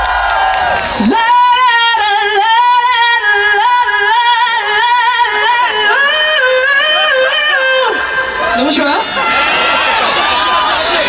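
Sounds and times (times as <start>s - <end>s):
backing music: 0.0s - 2.9s
woman singing through pa system: 1.0s - 9.0s.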